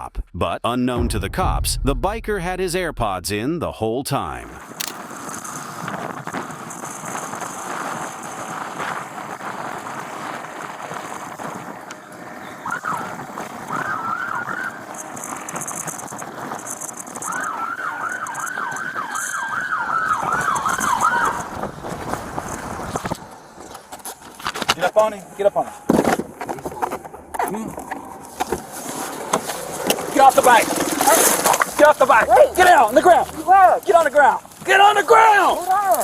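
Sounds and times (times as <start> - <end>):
vehicle and road noise: 4.8 - 34.7
police siren yelping: 17.2 - 21.6.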